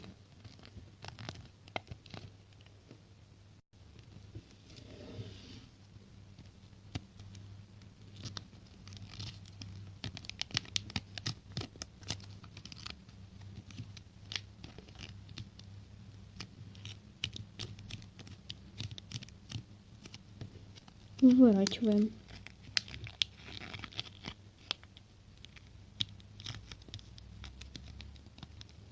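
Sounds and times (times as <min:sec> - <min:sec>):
paper being folded and creased: 0:00.0 - 0:02.6, 0:08.1 - 0:15.5, 0:16.3 - 0:28.9.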